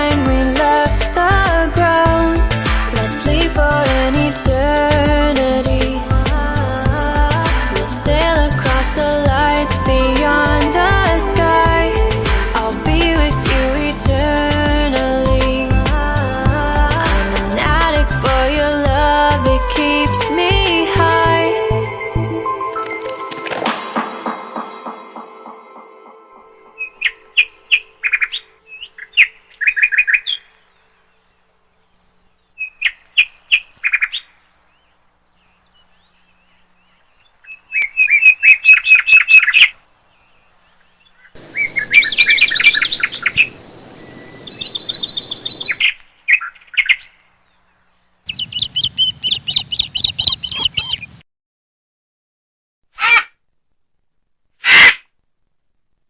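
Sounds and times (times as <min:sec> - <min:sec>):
birds chirping: 0:07.1 - 0:17.5, 0:26.5 - 0:51.2.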